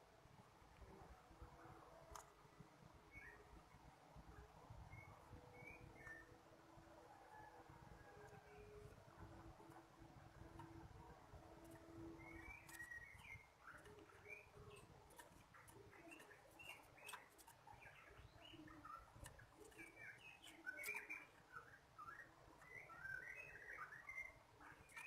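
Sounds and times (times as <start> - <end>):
songbird chirping: 0.2 - 25.0
faint clicks: 1.8 - 2.6, 7.5 - 23.2.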